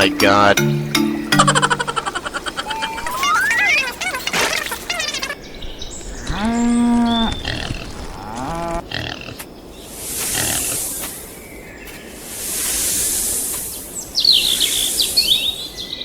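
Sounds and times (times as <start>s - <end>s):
drawn-out animal-like call: 2.0s - 5.5s, 6.1s - 9.4s
hissing whoosh: 12.2s - 14.0s.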